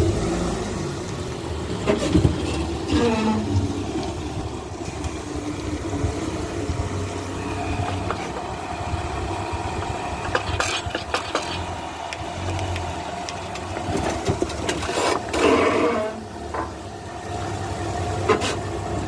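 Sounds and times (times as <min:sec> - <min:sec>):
car engine running at low speed: 0:00.0 - 0:19.0
grinding scrape: 0:01.8 - 0:03.8, 0:10.2 - 0:11.8, 0:13.8 - 0:16.7.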